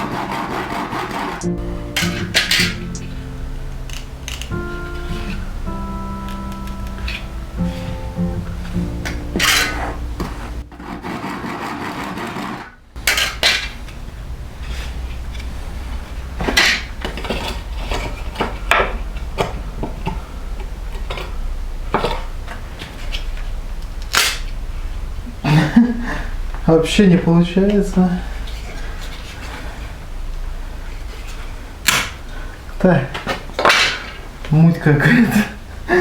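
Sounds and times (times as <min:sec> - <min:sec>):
wood rubbing: 0:00.0 - 0:25.1.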